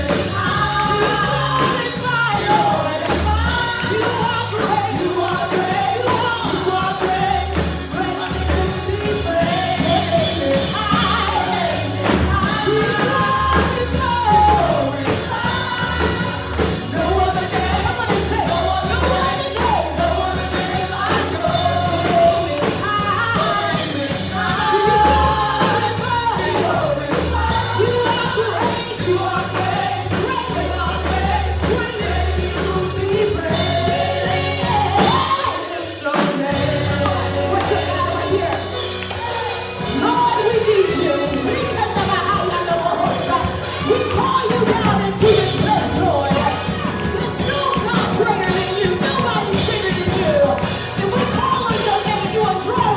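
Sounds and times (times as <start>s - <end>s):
gospel music with singing: 0.0s - 52.9s.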